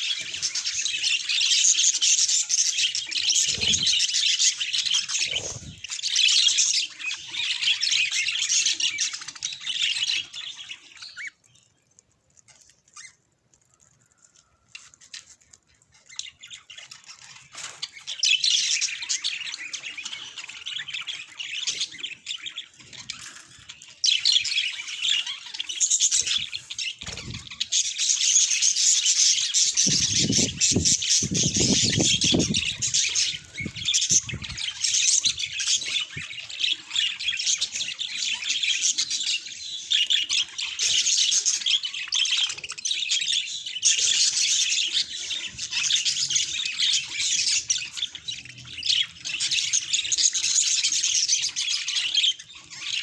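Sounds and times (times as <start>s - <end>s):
budgerigars chattering: 0.0s - 10.4s, 24.1s - 53.0s.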